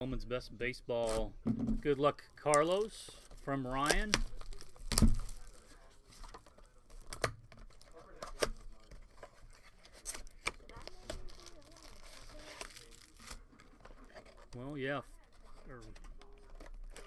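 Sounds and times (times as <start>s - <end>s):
cardboard and plastic tearing: 1.0s - 1.3s, 2.5s - 17.0s.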